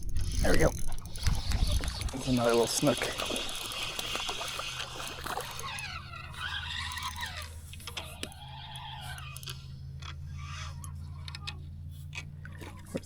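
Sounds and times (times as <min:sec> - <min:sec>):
steady low hum: 0:00.0 - 0:13.0
water splashing and dripping: 0:00.6 - 0:08.9.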